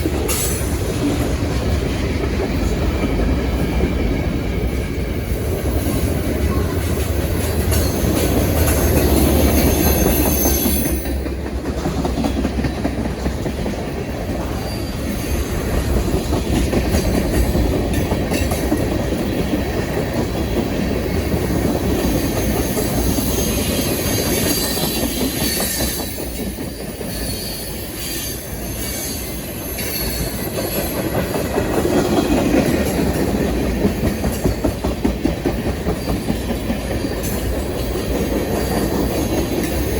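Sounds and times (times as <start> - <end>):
train wheels clacking over rail joints: 0.0 - 39.9
high wheel squeal: 9.3 - 11.2, 14.6 - 15.5, 22.4 - 30.6.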